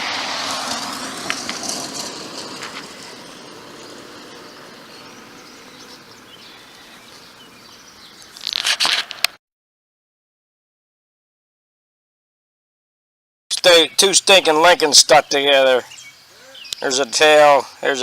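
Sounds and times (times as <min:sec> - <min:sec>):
outdoor background hiss: 0:00.0 - 0:08.5, 0:13.5 - 0:18.0.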